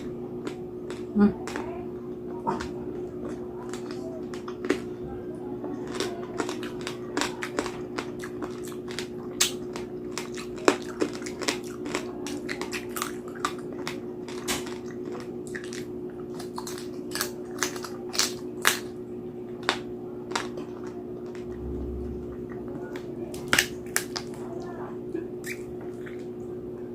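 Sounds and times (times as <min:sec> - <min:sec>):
crispy skin crunching: 0:05.7 - 0:19.0, 0:23.4 - 0:24.4.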